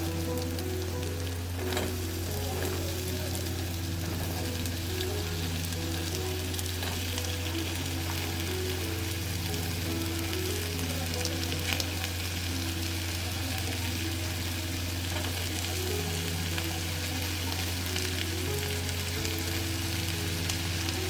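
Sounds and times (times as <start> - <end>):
stew sizzling and bubbling: 0.0 - 21.0.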